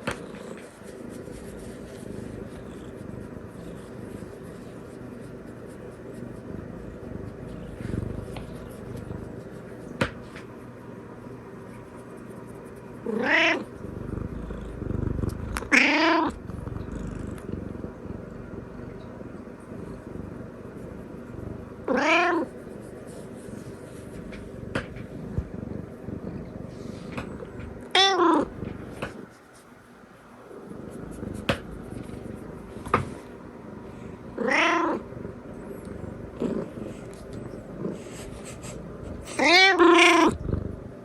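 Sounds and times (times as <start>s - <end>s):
cat purring: 0.0s - 29.5s, 30.3s - 41.0s
cat meowing: 13.1s - 13.7s, 15.6s - 16.4s, 21.9s - 22.4s, 27.9s - 28.5s, 34.4s - 35.0s, 39.3s - 40.4s.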